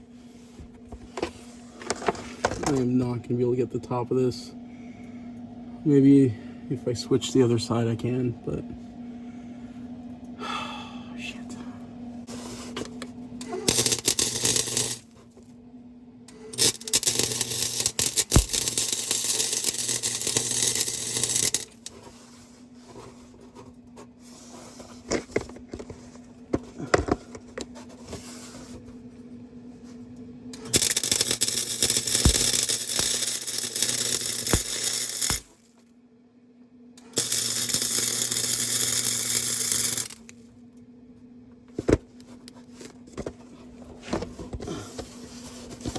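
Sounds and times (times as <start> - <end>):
low electrical hum: 0.0 - 45.9
electric welder arc crackling: 12.3 - 15.2, 16.3 - 22.0, 30.5 - 35.7, 37.0 - 40.4.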